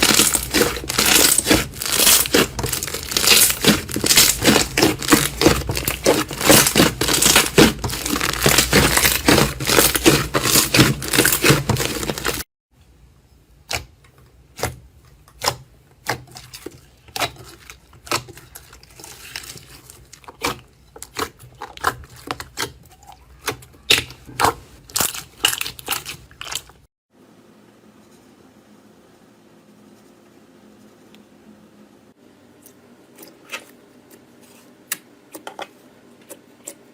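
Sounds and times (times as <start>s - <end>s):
crunchy material crackling: 0.0s - 12.5s.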